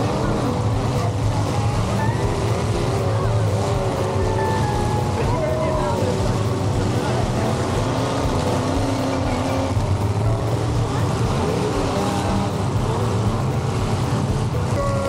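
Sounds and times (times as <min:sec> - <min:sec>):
car engines running: 0:00.0 - 0:15.0
crowd chatter: 0:00.0 - 0:15.0.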